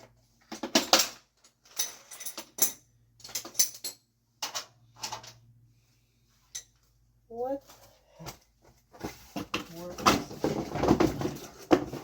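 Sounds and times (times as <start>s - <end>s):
metal tools clanking and rattling: 0.4s - 5.4s.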